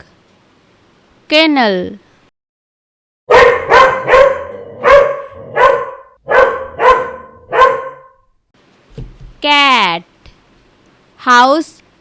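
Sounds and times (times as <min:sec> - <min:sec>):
dog barking: 0:03.3 - 0:08.2.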